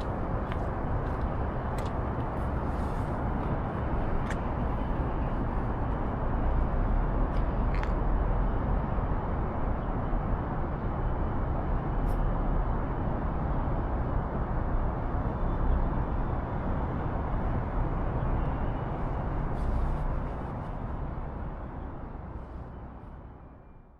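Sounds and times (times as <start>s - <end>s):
city traffic rumble: 0.0s - 23.9s
street noise: 0.0s - 23.9s.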